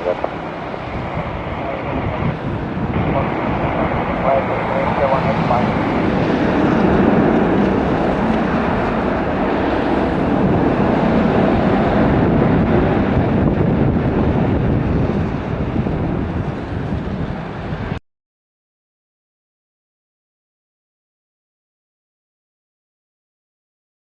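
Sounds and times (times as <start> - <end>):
jet engines roaring: 0.0 - 18.0
wind on microphone: 0.0 - 18.0.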